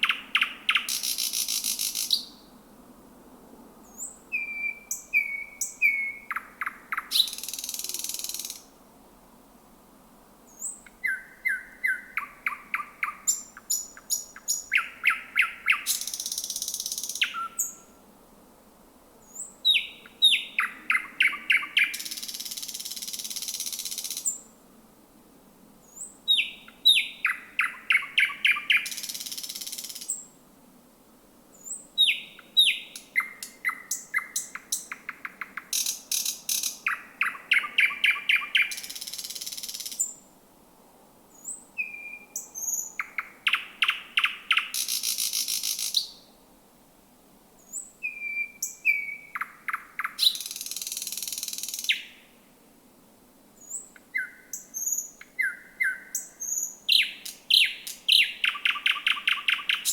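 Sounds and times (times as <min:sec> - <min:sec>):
bird singing with trills: 0:03.9 - 0:08.6, 0:10.6 - 0:17.8, 0:19.3 - 0:23.0, 0:26.0 - 0:30.2, 0:31.6 - 0:40.1, 0:41.4 - 0:46.2, 0:47.7 - 0:52.1, 0:53.6 - 0:59.9.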